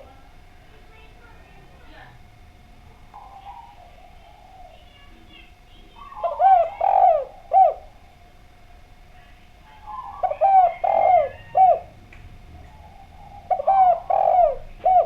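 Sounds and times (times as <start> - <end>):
faint steady tone: 0.0 - 15.0
dove cooing: 3.0 - 8.4, 9.4 - 15.0.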